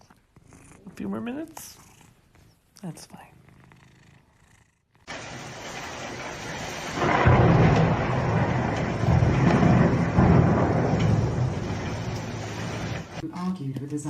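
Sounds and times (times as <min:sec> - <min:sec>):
rushing noise with deep rumble: 0:05.1 - 0:13.2.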